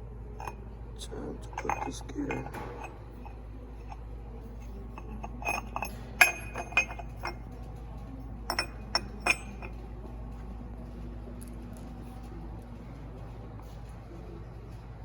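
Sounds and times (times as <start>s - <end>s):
metal tools clinking: 1.4s - 7.6s, 8.4s - 9.8s.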